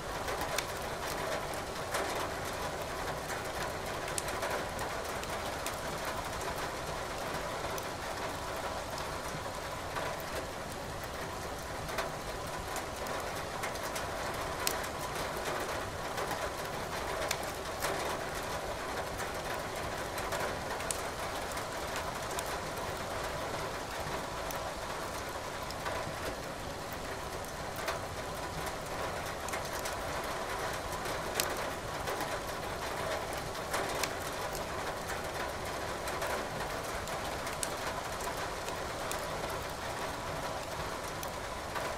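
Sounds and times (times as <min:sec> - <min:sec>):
steady rain hiss: 0:00.0 - 0:41.9
wood fire crackling: 0:33.4 - 0:34.6, 0:37.6 - 0:39.7, 0:40.6 - 0:41.3.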